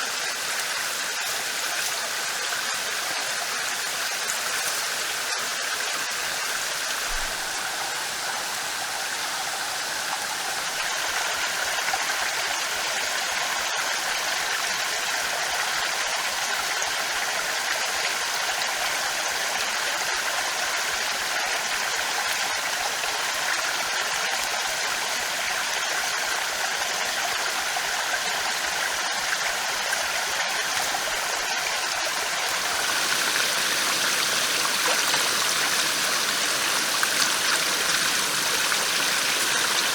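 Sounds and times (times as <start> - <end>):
running water rushing: 0.0 - 14.5, 26.6 - 39.9.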